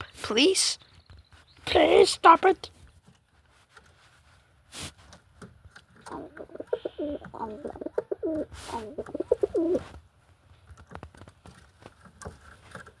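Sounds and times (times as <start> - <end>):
pigeon cooing: 6.1 - 9.9.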